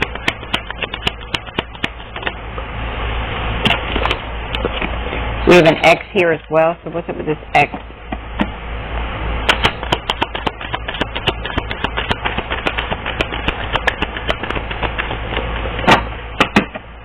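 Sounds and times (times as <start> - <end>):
cards shuffling and clicking: 0.0 - 2.4, 9.5 - 16.0
steady low hum: 0.0 - 17.0.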